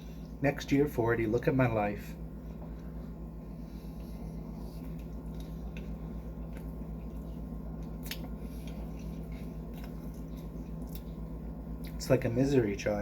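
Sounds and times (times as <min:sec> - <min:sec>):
steady low hum: 0:00.0 - 0:13.0
person chewing food: 0:02.4 - 0:12.0.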